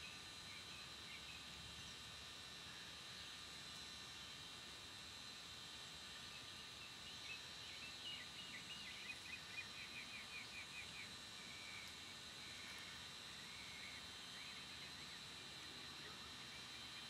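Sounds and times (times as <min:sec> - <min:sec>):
steady background hiss: 0:00.0 - 0:17.0
songbird singing faintly: 0:06.3 - 0:17.0.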